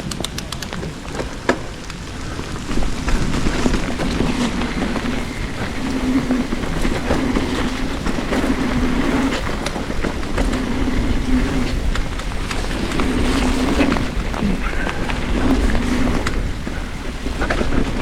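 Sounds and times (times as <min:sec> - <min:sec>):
clicks: 0:00.0 - 0:02.8
tyres rolling over dirt: 0:00.0 - 0:18.0.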